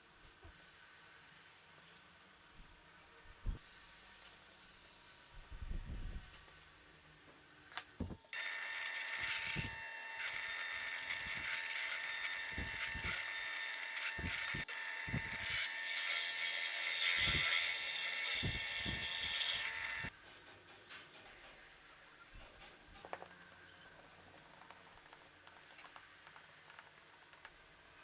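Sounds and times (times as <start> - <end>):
wood router motor whine: 8.3 - 20.1.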